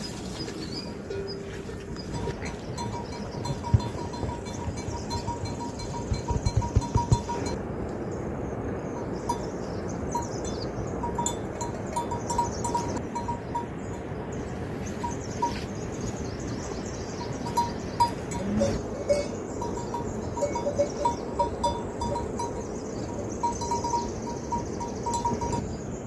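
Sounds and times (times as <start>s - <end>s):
livestock bells clinking: 1.0s - 7.6s, 9.3s - 14.2s, 17.2s - 26.0s.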